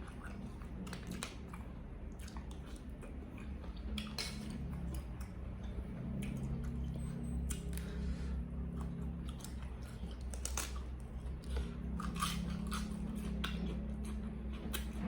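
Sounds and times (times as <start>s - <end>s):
person chewing food: 0.0s - 15.0s
crisp crunches: 9.9s - 13.1s.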